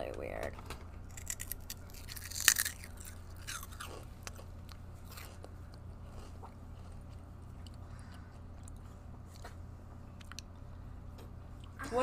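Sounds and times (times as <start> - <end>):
chewing crunchy chip: 1.1 - 9.5.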